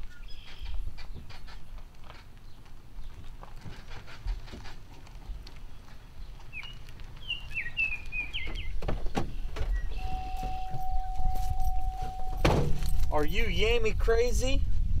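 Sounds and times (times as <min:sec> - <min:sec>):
songbird chirping: 0:00.0 - 0:01.8, 0:05.3 - 0:13.8
steady high tone: 0:09.9 - 0:13.6.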